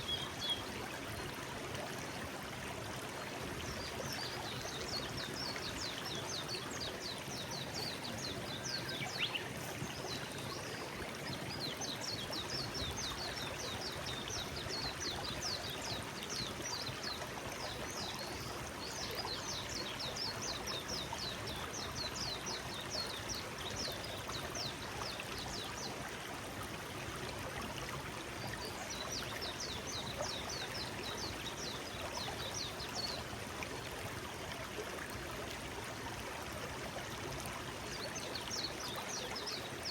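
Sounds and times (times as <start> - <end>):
forest stream flowing: 0.0 - 39.9.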